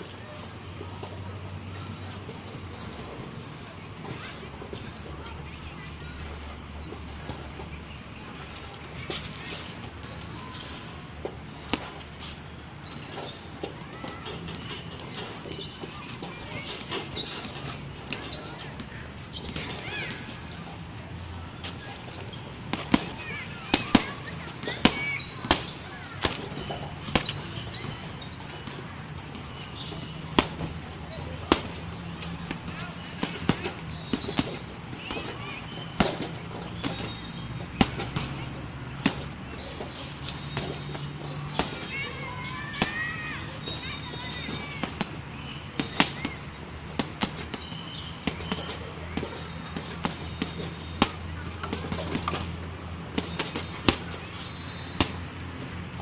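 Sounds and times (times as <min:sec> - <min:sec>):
punching bag thudding hits: 0:36.0 - 0:38.4, 0:39.0 - 0:39.3, 0:40.5 - 0:41.9, 0:47.0 - 0:52.5, 0:53.1 - 0:54.2.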